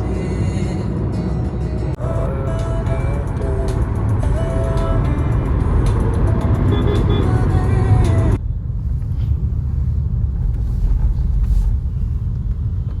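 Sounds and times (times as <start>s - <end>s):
music: 0.0s - 8.4s
car driving rumble: 0.0s - 13.0s.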